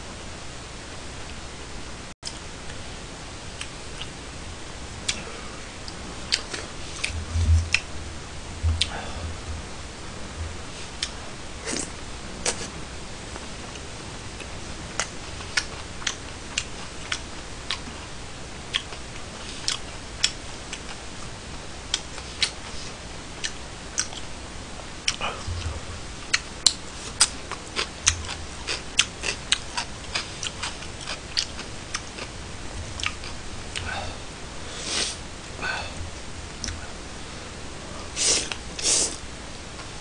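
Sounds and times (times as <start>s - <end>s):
crunchy food chewing: 13.6s - 18.1s, 18.7s - 21.3s, 25.0s - 34.0s.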